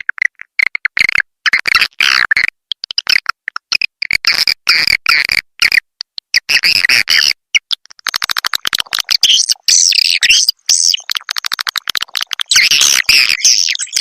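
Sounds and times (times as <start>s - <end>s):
swiftlet chirps and twittering: 8.0s - 14.0s.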